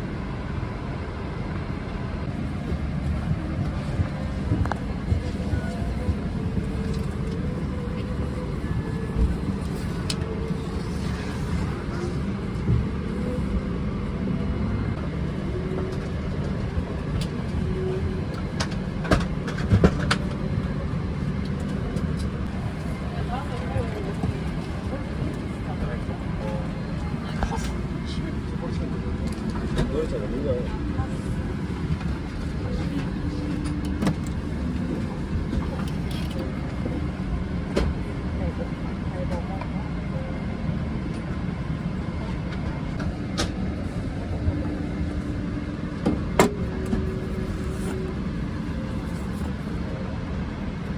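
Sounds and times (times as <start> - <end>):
vehicle cabin rumble: 0.0 - 50.9
faint background voices: 15.0 - 50.2.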